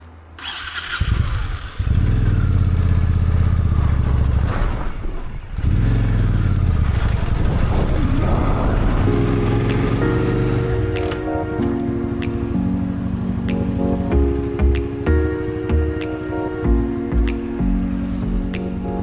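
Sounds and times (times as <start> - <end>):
motorcycle engine running: 1.0 - 4.7, 5.5 - 8.2.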